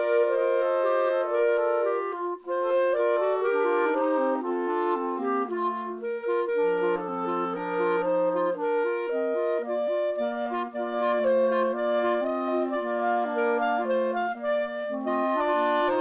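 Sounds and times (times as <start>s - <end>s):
woodwind music in harmony: 0.0s - 16.0s.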